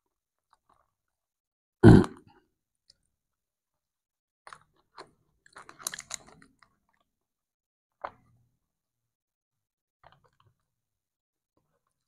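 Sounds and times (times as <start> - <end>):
wet mouth clicks and smacks: 4.5 - 6.5
person chewing food: 4.5 - 7.1, 10.0 - 10.6.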